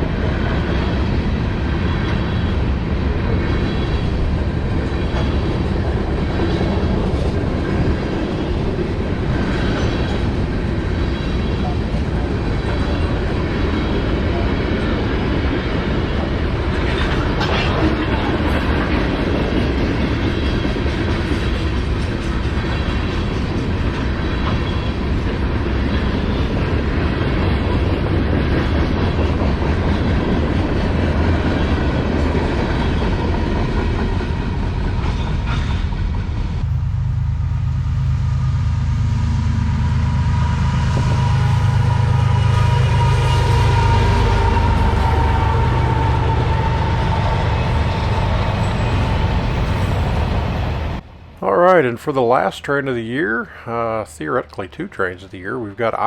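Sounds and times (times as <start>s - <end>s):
wheels clickety-clack on rail joints: 0.0s - 36.6s
freight train rumbling past: 0.0s - 56.0s.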